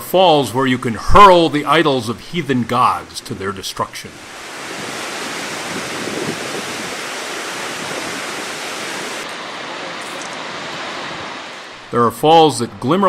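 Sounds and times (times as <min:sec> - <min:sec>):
waterfall rushing: 0:03.8 - 0:11.9.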